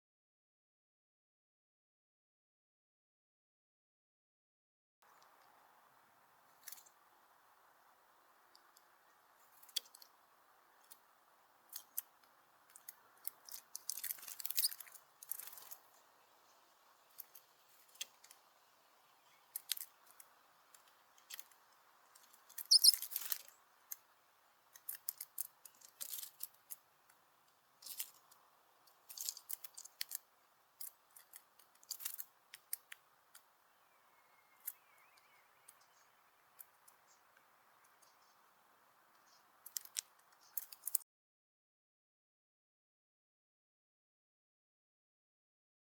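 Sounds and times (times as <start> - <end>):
faint steady hiss: 5.0 - 41.0
birds pecking at feeder: 5.1 - 41.0.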